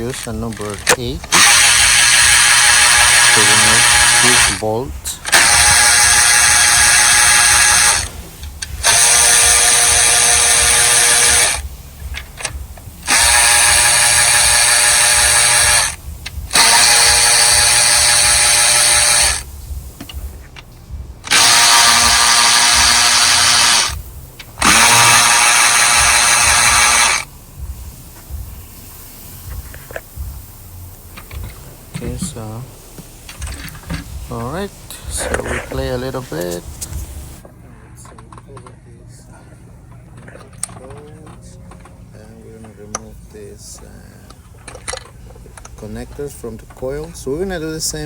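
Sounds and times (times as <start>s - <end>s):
power drill whining: 0.0s - 19.5s, 21.2s - 24.0s, 24.6s - 27.3s.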